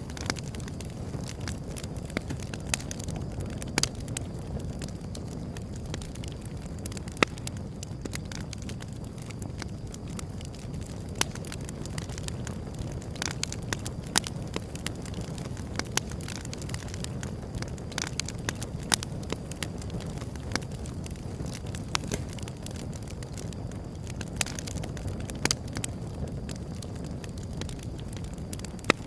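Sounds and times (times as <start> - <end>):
wood fire crackling and popping: 0.0 - 29.0.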